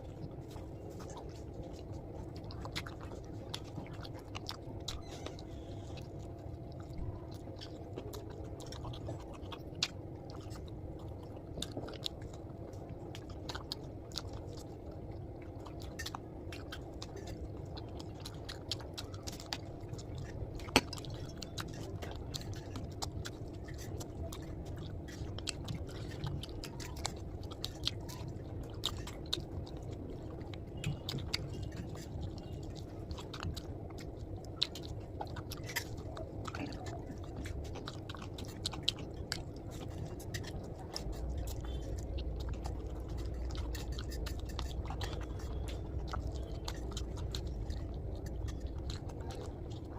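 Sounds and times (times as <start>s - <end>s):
person chewing: 0.0s - 49.9s.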